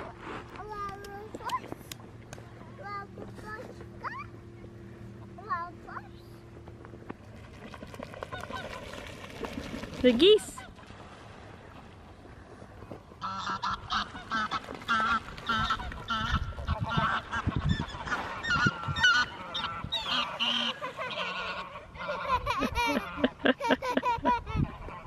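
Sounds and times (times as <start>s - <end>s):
geese honking: 8.3s - 9.0s, 13.2s - 23.5s.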